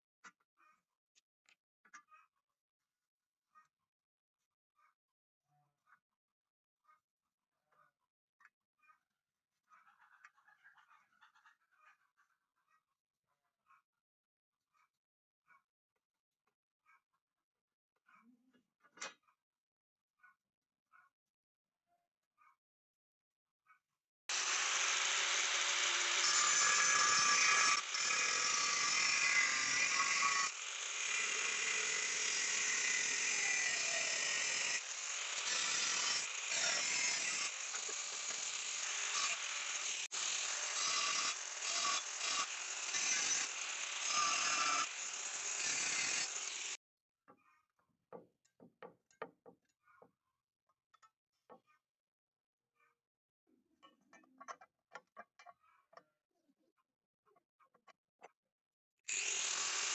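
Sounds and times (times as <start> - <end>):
loud metalworking noise: 24.3 - 46.8.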